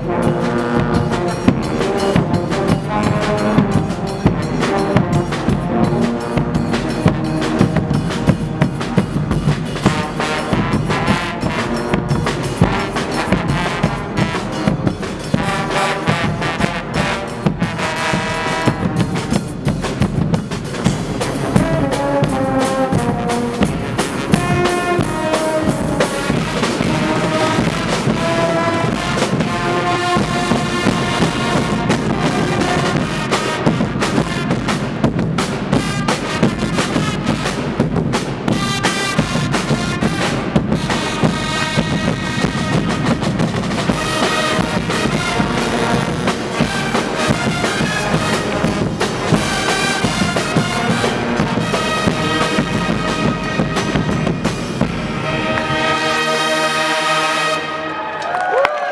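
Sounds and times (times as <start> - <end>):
drums keeping steady beat: 0.0 - 58.1
brass section playing melody: 0.0 - 58.5.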